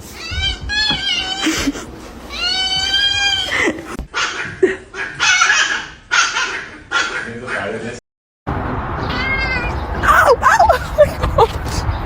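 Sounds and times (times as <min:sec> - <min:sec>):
cat meowing: 0:00.1 - 0:01.5, 0:02.3 - 0:04.0, 0:09.1 - 0:10.4.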